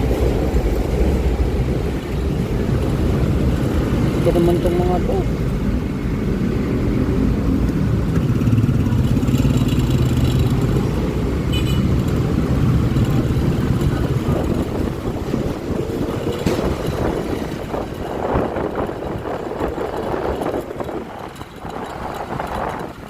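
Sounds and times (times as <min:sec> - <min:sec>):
road and wind noise: 0:00.0 - 0:23.0
scooter engine hum: 0:00.0 - 0:23.0.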